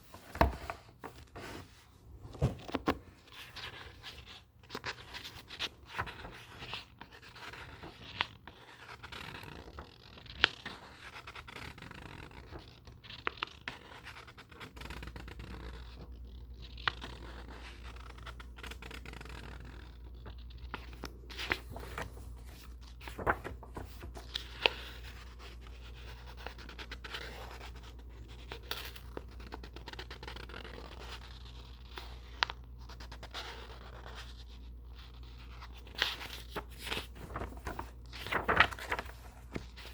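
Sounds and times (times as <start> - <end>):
books scraping and rustling: 0.0 - 4.2, 20.8 - 25.2, 36.0 - 39.9
low steady hum: 19.7 - 39.9.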